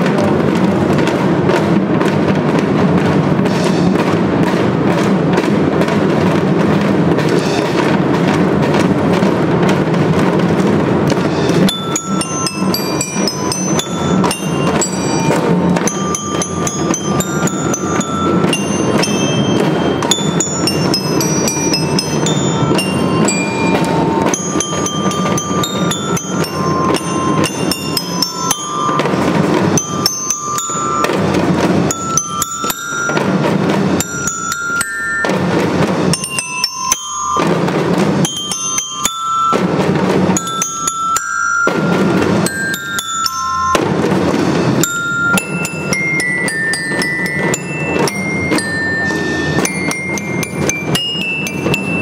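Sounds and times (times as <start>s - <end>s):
drums beating: 0.0s - 52.0s
bell lyra melody: 11.1s - 52.0s.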